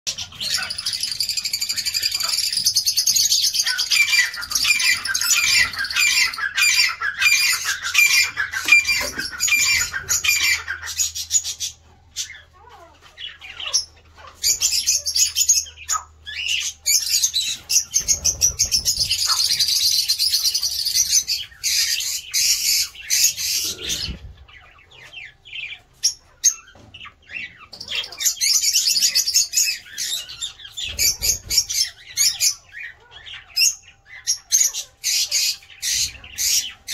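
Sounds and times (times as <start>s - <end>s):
birds chattering and squawking: 0.1s - 36.9s.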